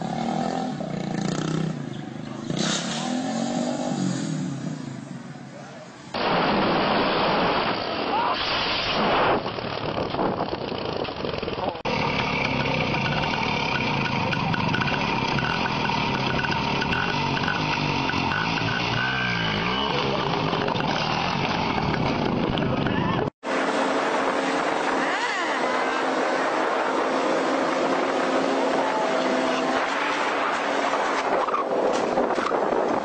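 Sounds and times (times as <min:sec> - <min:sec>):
motorcycle engine revving: 0:00.0 - 0:05.1, 0:09.1 - 0:33.0
rushing noise: 0:06.1 - 0:10.5
engine at steady speed: 0:09.6 - 0:33.0.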